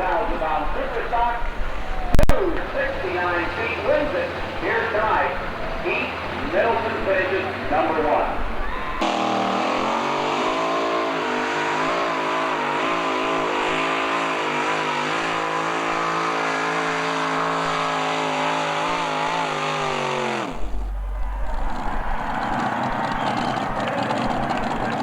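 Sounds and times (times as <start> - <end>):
high-revving engine: 2.9 - 25.0
low rumble with knocks: 20.4 - 25.0.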